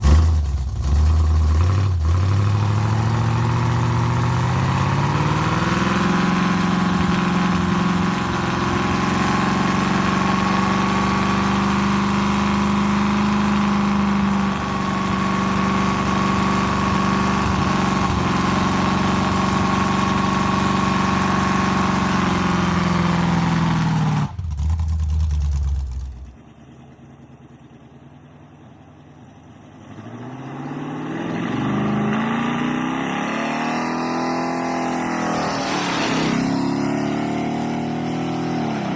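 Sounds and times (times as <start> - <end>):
vehicle engine running: 0.0 - 29.9.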